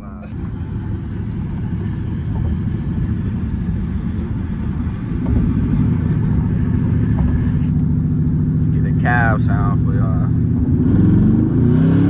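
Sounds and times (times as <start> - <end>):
engine deep exhaust drone: 0.0 - 12.0.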